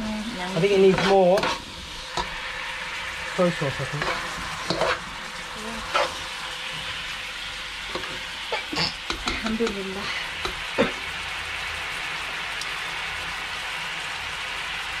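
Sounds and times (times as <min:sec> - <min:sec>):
meat and sauce sizzling: 0:00.0 - 0:15.0
metal spoon scraping a pan: 0:00.5 - 0:02.6, 0:03.5 - 0:05.1, 0:05.8 - 0:06.3, 0:07.9 - 0:10.6.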